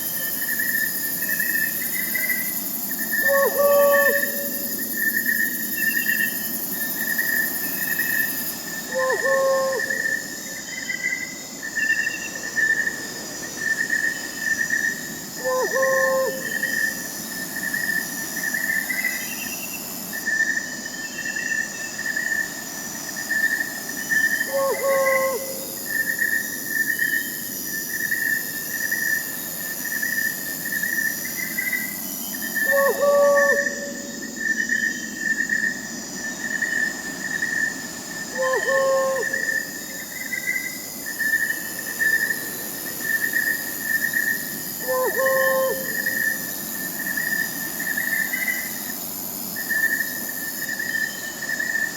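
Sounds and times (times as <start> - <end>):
crickets chirping: 0.0 - 51.9
owl hooting: 3.2 - 4.8, 8.9 - 10.2, 15.4 - 16.9, 24.5 - 25.8, 32.6 - 34.1, 38.3 - 39.7, 44.8 - 46.4.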